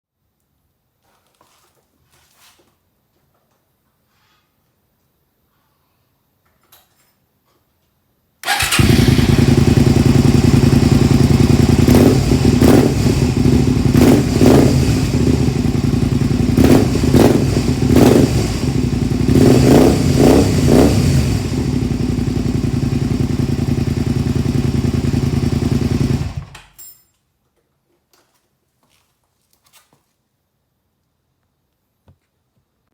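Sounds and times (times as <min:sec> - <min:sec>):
motorcycle engine idling and revving: 0:08.4 - 0:26.6.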